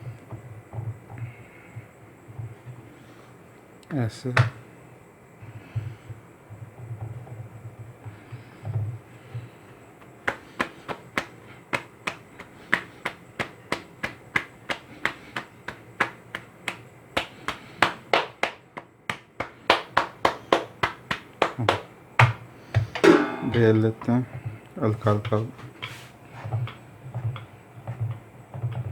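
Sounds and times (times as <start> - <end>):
hands slapping dough: 4.3 - 4.6, 8.0 - 23.8.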